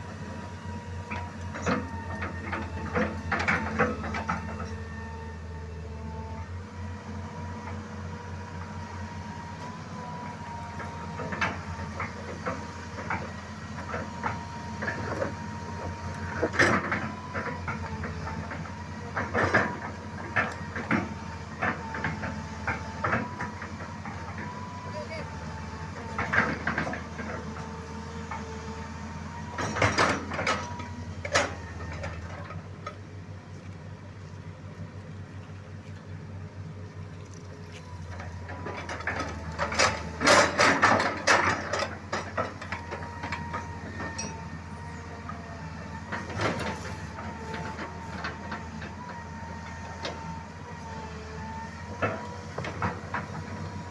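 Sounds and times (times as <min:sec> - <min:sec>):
engine running steadily: 0:00.0 - 0:53.9
metallic clanks and knocks: 0:29.5 - 0:33.0, 0:38.3 - 0:44.6.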